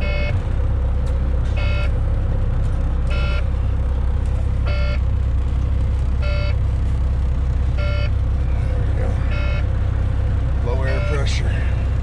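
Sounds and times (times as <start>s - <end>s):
warning alarm beeping: 0.0s - 0.4s, 1.5s - 2.0s, 3.1s - 3.6s, 4.6s - 5.1s, 6.2s - 6.7s, 7.7s - 8.2s, 9.1s - 11.7s
diesel truck engine idling: 0.0s - 12.0s.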